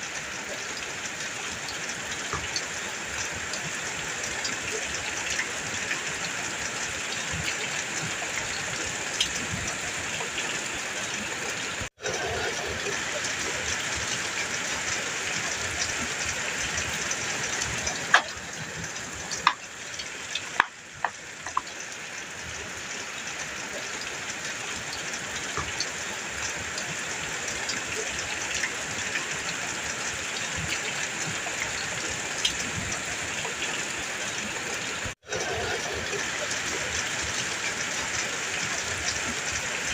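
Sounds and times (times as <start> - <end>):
heavy rain on a metal roof: 0.0 - 39.9
sharp drip impacts: 15.0 - 22.2.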